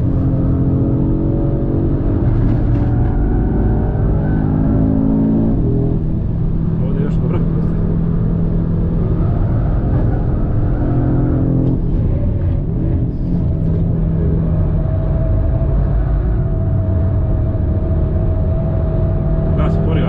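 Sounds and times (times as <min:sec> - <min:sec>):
car engine running hard: 0:00.0 - 0:20.0.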